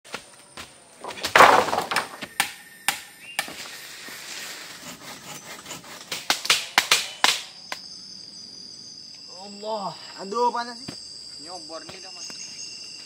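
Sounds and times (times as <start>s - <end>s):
sharp knocks and thuds: 0.1s - 3.0s.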